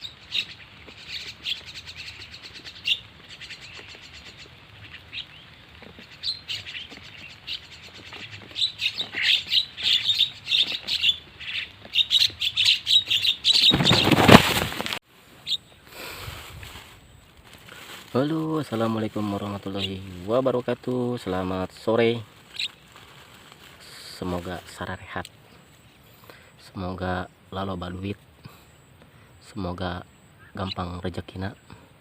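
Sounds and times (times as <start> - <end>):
starling chirps: 0.0 - 14.6, 15.4 - 15.9, 18.2 - 23.0, 27.2 - 31.8.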